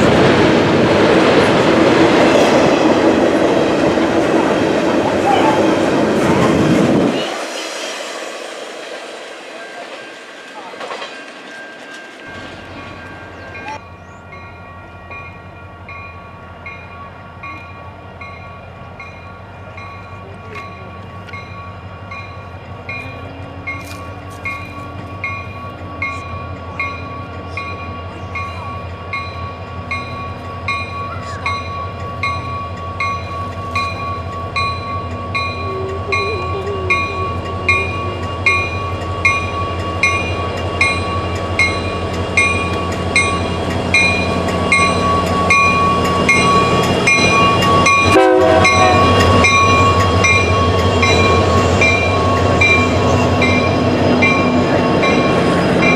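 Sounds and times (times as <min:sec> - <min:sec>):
diesel locomotives passing: 0:00.0 - 0:55.9
crossing bell ringing: 0:08.9 - 0:55.9.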